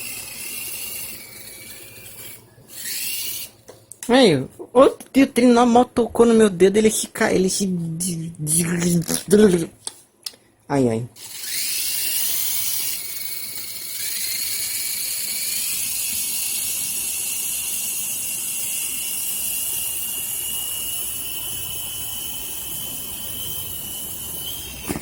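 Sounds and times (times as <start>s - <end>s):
toy helicopter rotor motors whining: 0.0s - 3.6s, 11.2s - 25.0s.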